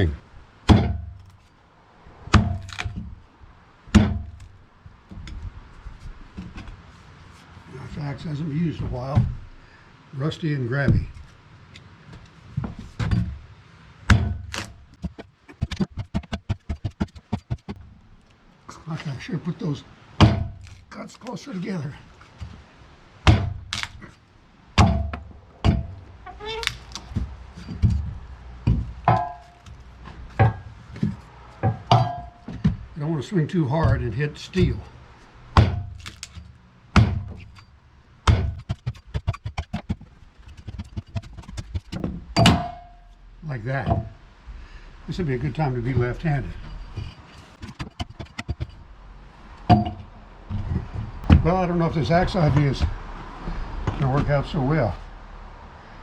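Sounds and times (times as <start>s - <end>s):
axe chopping into log: 0.7s - 1.3s, 2.3s - 3.1s, 3.9s - 4.5s, 14.1s - 17.8s, 20.2s - 20.8s, 23.2s - 24.1s, 24.8s - 26.0s, 35.6s - 37.6s, 38.2s - 40.0s, 40.7s - 42.9s
metallic ring: 42.4s - 43.2s, 49.7s - 50.1s.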